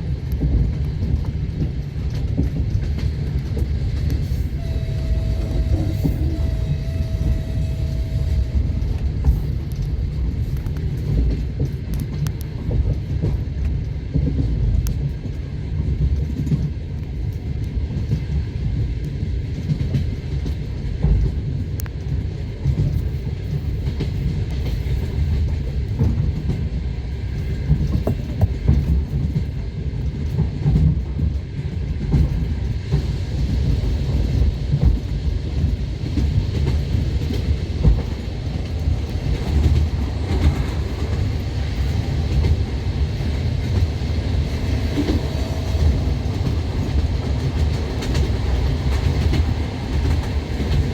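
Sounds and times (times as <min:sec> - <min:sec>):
train wheels rumbling: 0:00.0 - 0:50.9.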